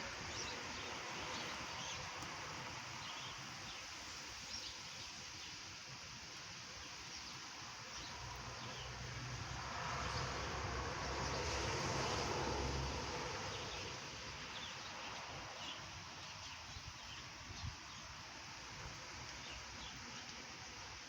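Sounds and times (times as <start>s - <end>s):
rain falling on foliage: 0.0s - 21.0s.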